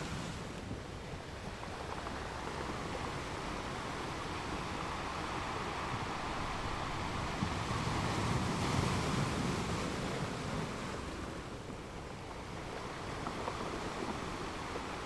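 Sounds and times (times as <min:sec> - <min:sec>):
waves washing onto shore: 0:00.0 - 0:15.0.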